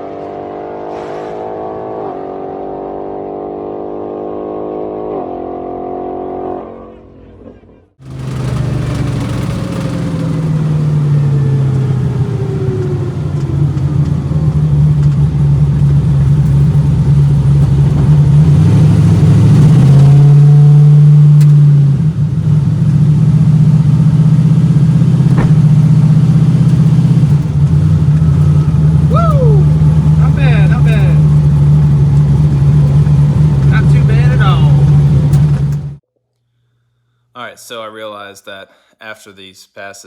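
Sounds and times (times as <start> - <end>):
car engine running: 8.0 - 36.0.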